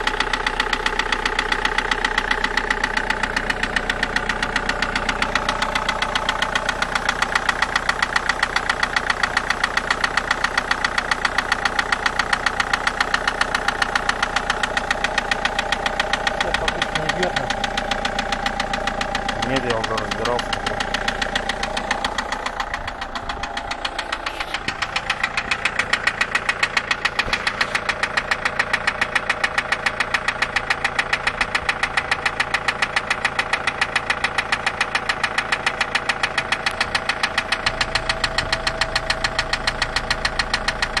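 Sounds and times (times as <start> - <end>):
diesel engine idling: 0.0 - 41.0
rapid regular engine knock: 0.0 - 41.0.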